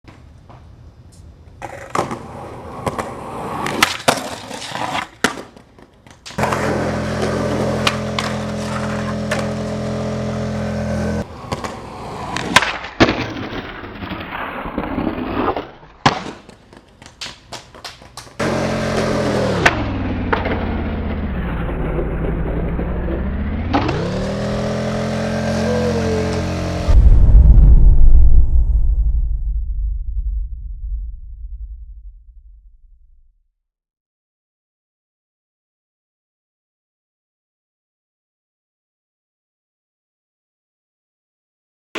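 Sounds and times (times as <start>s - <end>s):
skateboard wheels rolling: 0.1s - 26.9s
skateboard popping and slapping: 1.6s - 9.7s, 11.2s - 20.7s
trucks grinding on a ledge: 6.4s - 12.5s, 18.4s - 26.9s
steady pitched drone: 25.4s - 32.7s.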